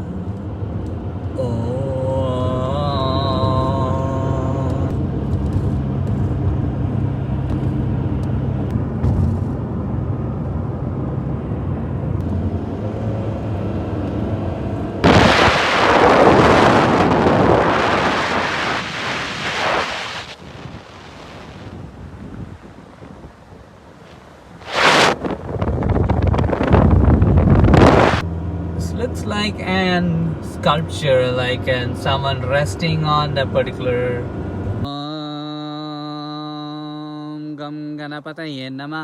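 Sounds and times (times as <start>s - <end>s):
car driving rumble: 0.0s - 34.9s
wind buffeting microphone: 14.9s - 28.2s.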